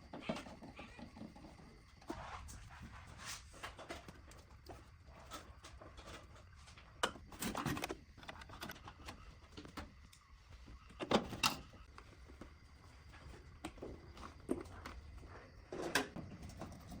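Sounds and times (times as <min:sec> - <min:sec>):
small parts clicking and tapping: 0:07.0 - 0:10.3.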